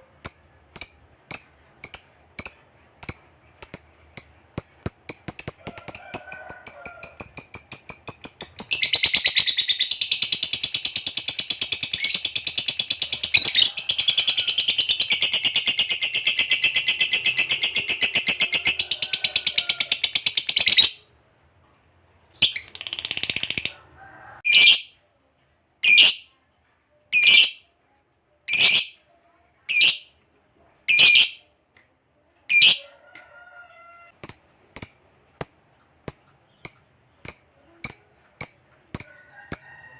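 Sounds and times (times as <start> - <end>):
lovebird chattering trill: 34.2 - 39.6.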